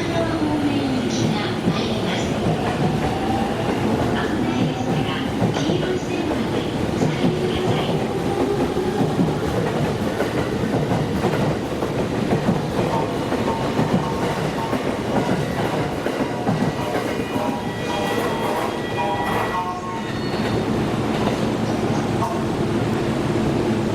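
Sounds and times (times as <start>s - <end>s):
train wheels clattering: 1.1s - 19.5s.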